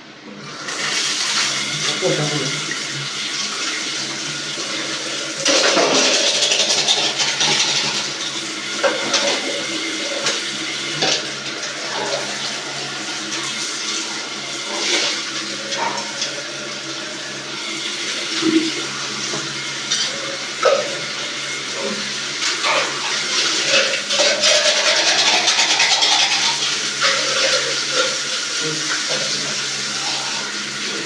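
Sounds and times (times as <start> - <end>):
water running: 0.4 - 31.0.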